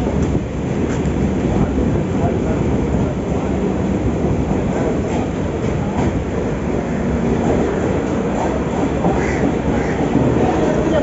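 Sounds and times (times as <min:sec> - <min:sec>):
rail clatter clicks: 0:00.0 - 0:11.0
train wheels rumbling: 0:00.0 - 0:11.0.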